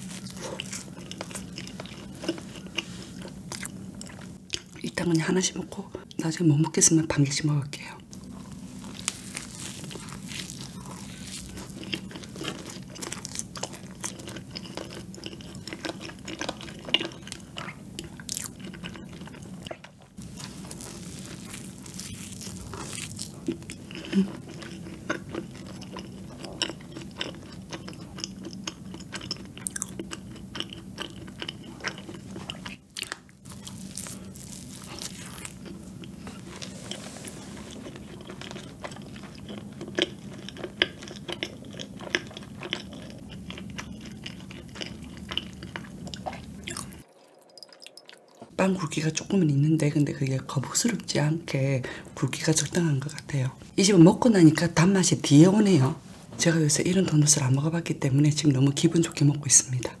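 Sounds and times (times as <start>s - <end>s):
person chewing donut: 0.0s - 4.8s, 8.0s - 48.6s.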